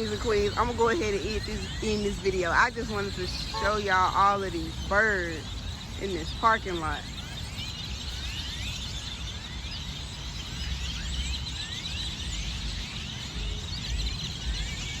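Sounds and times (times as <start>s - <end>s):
low outdoor rumble: 0.0s - 7.6s
flock of birds chattering: 0.0s - 15.0s.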